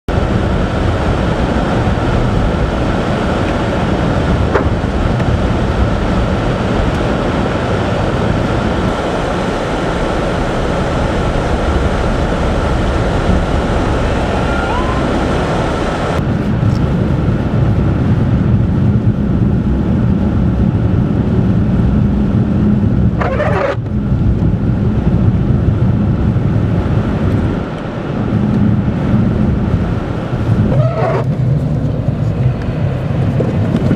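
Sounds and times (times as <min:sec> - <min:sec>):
car engine hum: 0:00.1 - 0:33.9
tyre and road noise: 0:00.1 - 0:33.9.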